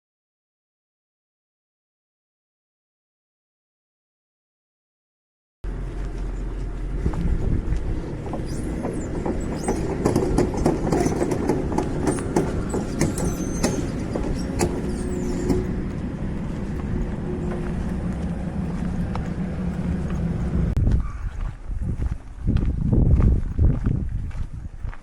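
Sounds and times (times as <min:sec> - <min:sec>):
vehicle rumbling past: 0:05.6 - 0:20.8
brief high squeaks: 0:08.3 - 0:15.8.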